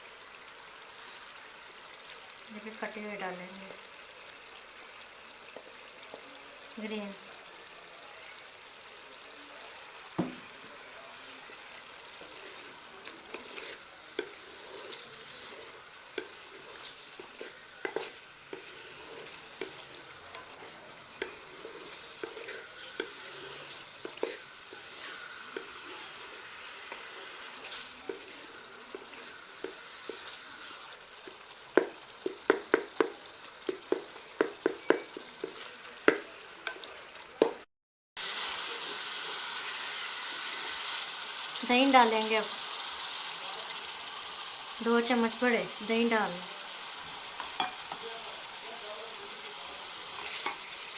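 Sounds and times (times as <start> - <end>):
food sizzling in oil: 0.0 - 50.9
spoon stirring and scraping pot: 10.2 - 37.6, 47.0 - 48.1, 49.8 - 50.9
spoon knocking against pot: 31.8 - 36.8.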